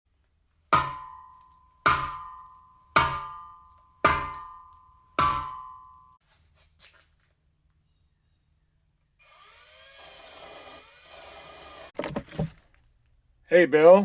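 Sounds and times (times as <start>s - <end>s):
sharp ringing strikes: 0.8s - 6.2s.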